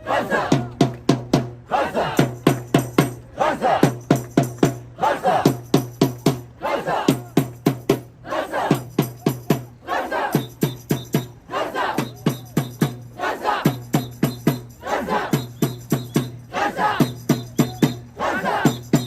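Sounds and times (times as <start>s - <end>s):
crowd shouting a chant: 0.0s - 0.8s, 1.6s - 2.5s, 3.1s - 4.1s, 4.8s - 5.7s, 6.4s - 19.0s
hand drums beating: 0.5s - 1.6s, 2.2s - 3.2s, 3.8s - 6.5s.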